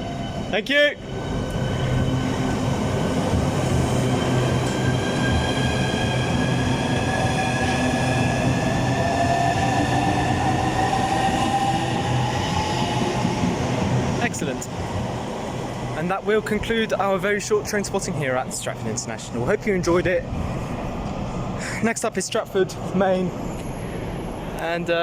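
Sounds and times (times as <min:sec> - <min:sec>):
train rolling noise: 0:00.0 - 0:25.0.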